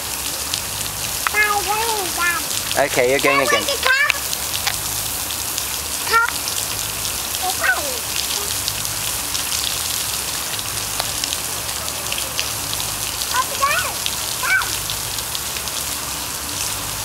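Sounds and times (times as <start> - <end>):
steady rain falling: 0.0 - 17.0
child's voice: 1.3 - 4.3, 6.0 - 6.5, 7.4 - 8.6, 13.3 - 14.8.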